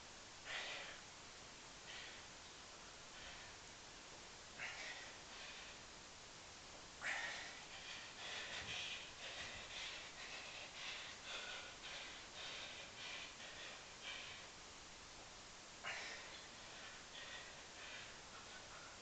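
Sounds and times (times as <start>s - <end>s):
man breathing hard: 0.4s - 1.1s, 1.8s - 3.7s, 4.5s - 6.0s, 7.0s - 14.6s, 15.8s - 19.0s.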